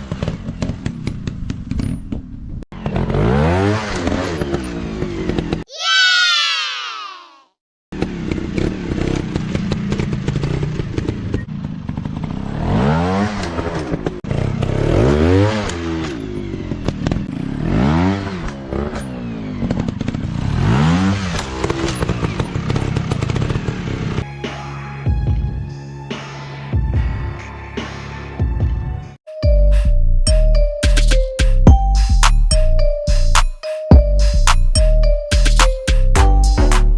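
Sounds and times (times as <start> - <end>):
dirt bike engines revving: 2.8 - 6.2, 8.0 - 24.2.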